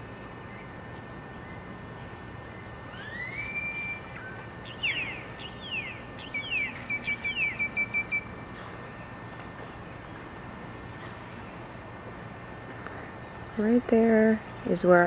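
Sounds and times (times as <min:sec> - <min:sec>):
birds calling: 0:00.0 - 0:10.3
rapid repeated bird chirps: 0:00.4 - 0:09.2.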